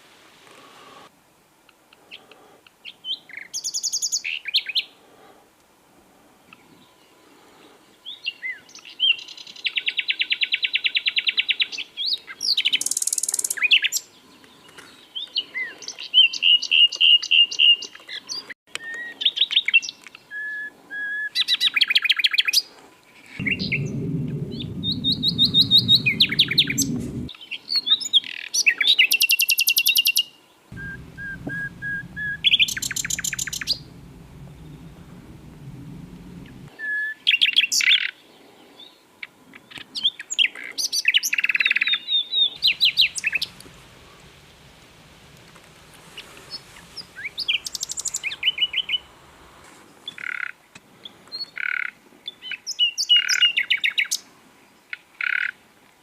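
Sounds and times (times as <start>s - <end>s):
low hum: 23.4s - 27.3s, 30.7s - 36.7s, 42.6s - 49.9s.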